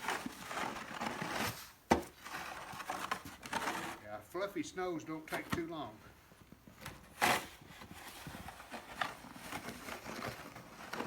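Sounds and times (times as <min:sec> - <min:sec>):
snow shovel scraping: 0:00.0 - 0:04.5, 0:07.0 - 0:11.0.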